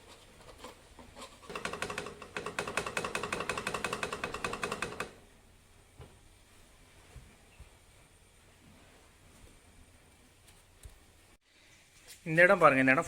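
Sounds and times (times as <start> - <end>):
rapid metallic clicking: 1.5 - 5.2.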